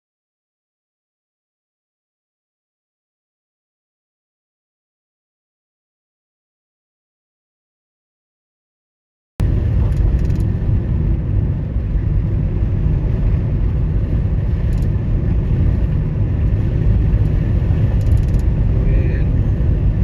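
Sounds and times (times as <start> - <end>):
car road and engine rumble: 9.4 - 20.0.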